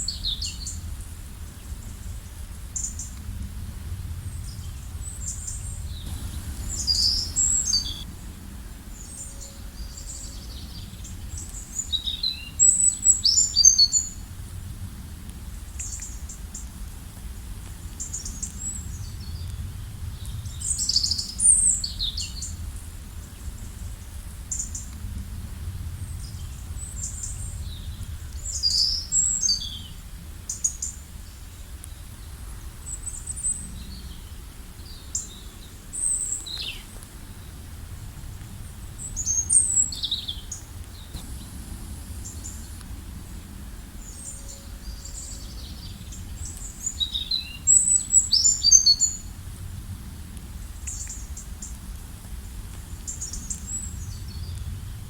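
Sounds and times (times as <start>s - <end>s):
faint low outdoor rumble: 0.0s - 55.0s
birds chirping: 5.0s - 8.1s, 39.0s - 48.7s.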